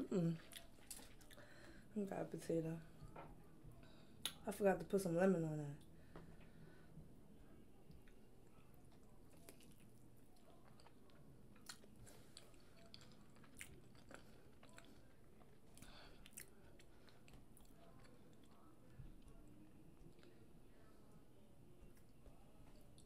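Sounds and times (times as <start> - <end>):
chewing and wet mouth sounds: 0.2 - 1.5, 7.8 - 20.5.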